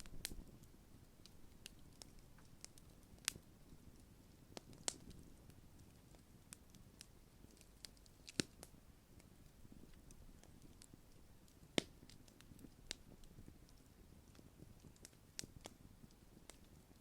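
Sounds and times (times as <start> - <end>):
campfire crackling: 0.0 - 17.0
sharp fire pops: 7.5 - 8.7.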